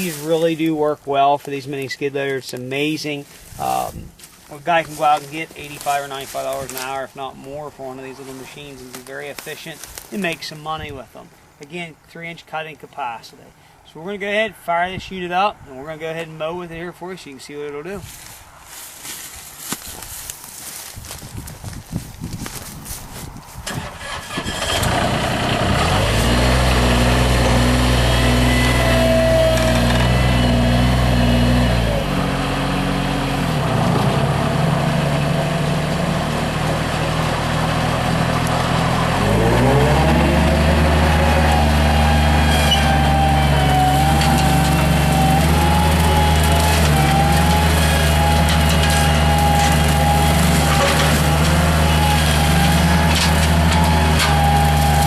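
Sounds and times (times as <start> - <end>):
loader engine starting and running: 23.6 - 55.0.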